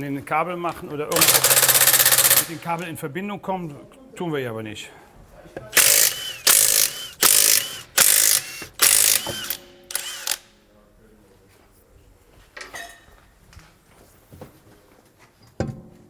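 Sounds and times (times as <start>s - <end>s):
impact wrench bursts: 1.1s - 2.8s, 5.7s - 10.5s.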